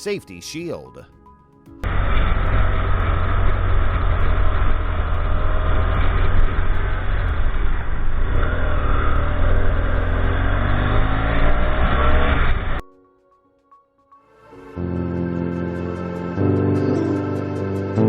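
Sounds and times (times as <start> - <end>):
vehicle engine rumbling: 1.8 - 12.8.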